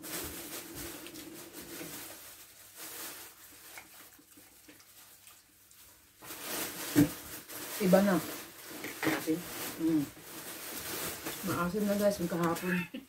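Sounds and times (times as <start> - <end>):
faint chewing: 3.5 - 6.1.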